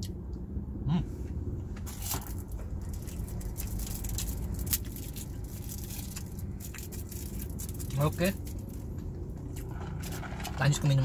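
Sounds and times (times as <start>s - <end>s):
low rumble inside car cabin: 0.0s - 11.0s
chewing crunchy food: 1.9s - 10.6s.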